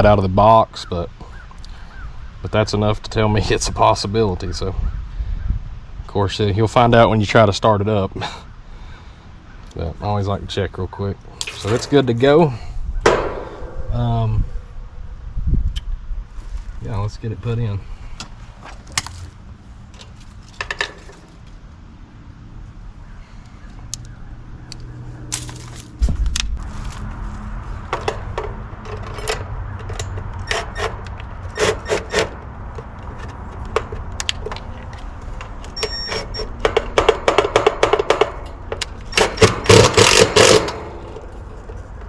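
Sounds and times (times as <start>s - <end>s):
steady low hum: 12.0s - 16.5s.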